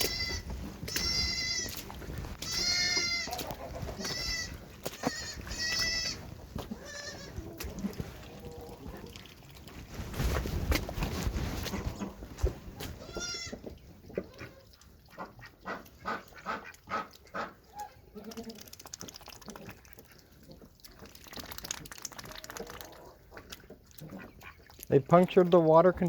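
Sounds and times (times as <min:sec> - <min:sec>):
goats bleating: 0:00.0 - 0:01.8, 0:02.4 - 0:07.5, 0:13.0 - 0:13.6.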